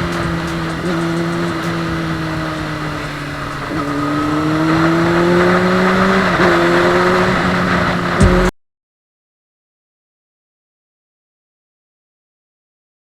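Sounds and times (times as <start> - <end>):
motorcycle engine accelerating: 0.0 - 8.5.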